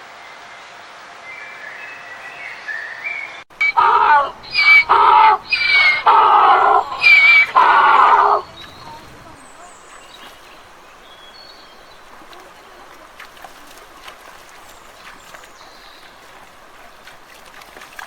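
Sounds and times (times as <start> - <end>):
faint bird chirping: 1.3 - 18.0
loud animal calls: 3.6 - 9.6.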